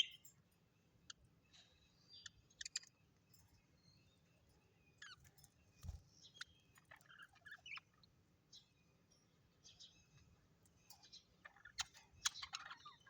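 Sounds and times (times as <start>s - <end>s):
parrots chirping: 0.0s - 0.3s, 1.0s - 4.1s, 4.8s - 8.8s, 11.0s - 13.0s.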